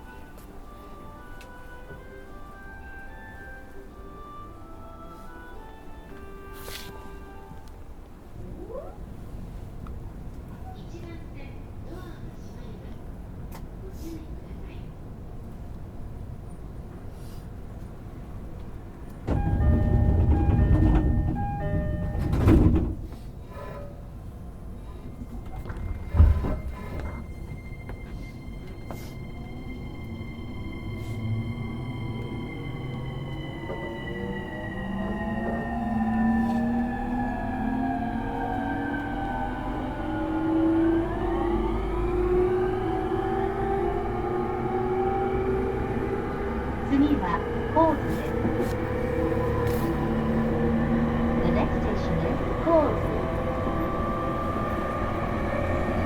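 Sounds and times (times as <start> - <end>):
sliding doors closing with thud: 19.2 - 24.0, 25.4 - 27.4
train door-closing chime: 19.2 - 24.0, 25.0 - 37.6
electric train motors whining: 19.3 - 22.8, 25.4 - 56.0.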